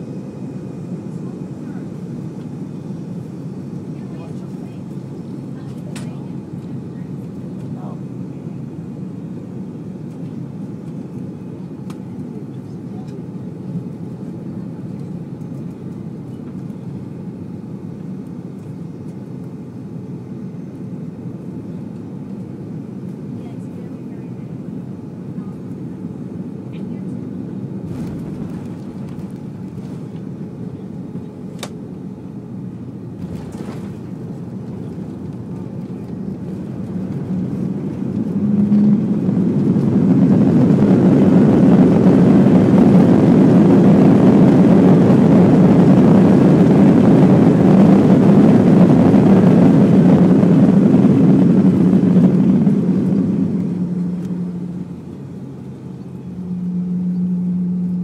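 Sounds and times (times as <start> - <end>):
jet engines and runway rumble: 0.0 - 58.0.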